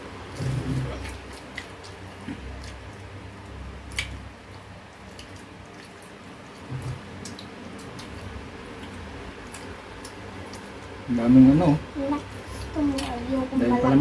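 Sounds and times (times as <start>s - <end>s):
wet chewing clicks and smacks: 0.9s - 11.0s.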